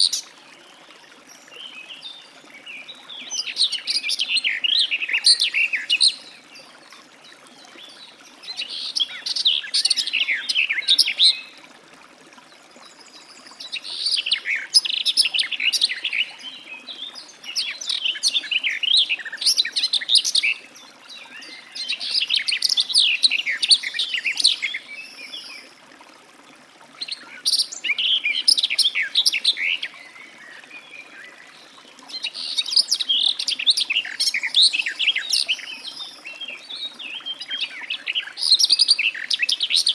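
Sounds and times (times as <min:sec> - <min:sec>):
warbler singing: 0:27.0 - 0:39.9.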